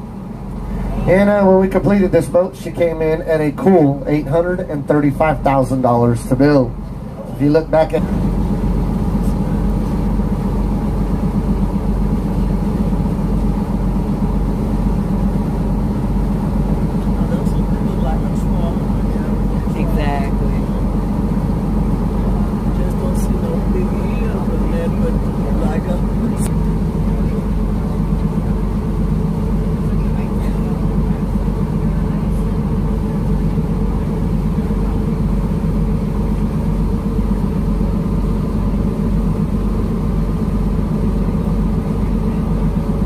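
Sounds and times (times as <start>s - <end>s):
diesel engines droning: 0.0s - 43.0s.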